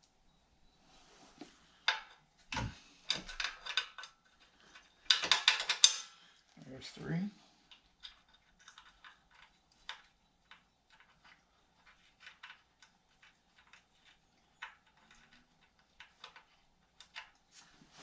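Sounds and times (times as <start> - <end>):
hand tools clicking and tapping metal: 1.9 - 6.2.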